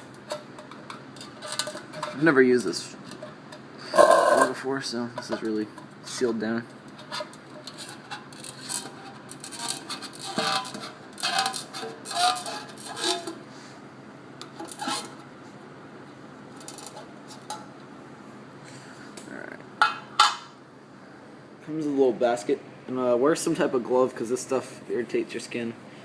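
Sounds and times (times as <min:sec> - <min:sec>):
metal can scraping and clinking: 0:07.0 - 0:13.4.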